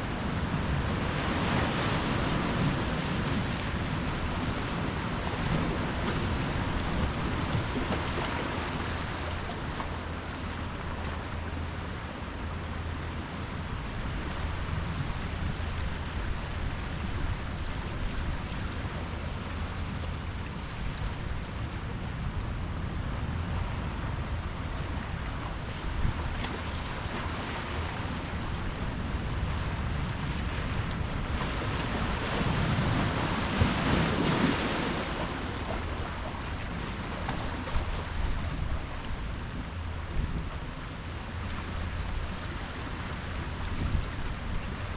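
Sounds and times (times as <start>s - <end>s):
ocean waves washing in: 0.0s - 44.9s
wave breaking: 25.2s - 44.9s.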